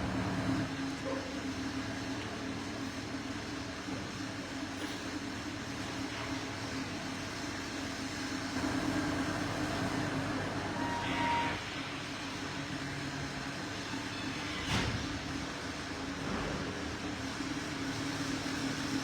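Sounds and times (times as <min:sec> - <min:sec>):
low mechanical hum: 0:00.0 - 0:19.0
short high beep: 0:10.8 - 0:11.6.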